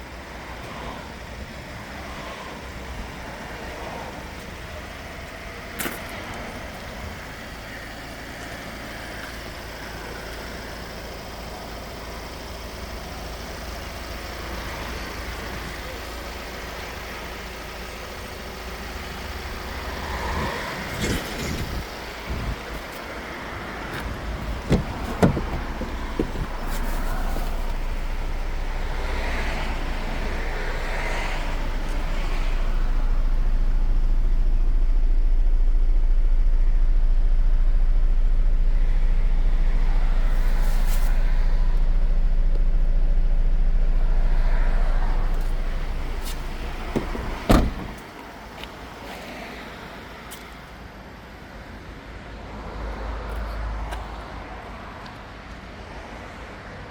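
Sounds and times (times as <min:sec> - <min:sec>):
low vehicle rumble: 0:00.0 - 0:55.0
knocks and thuds: 0:24.0 - 0:26.9, 0:45.6 - 0:48.1.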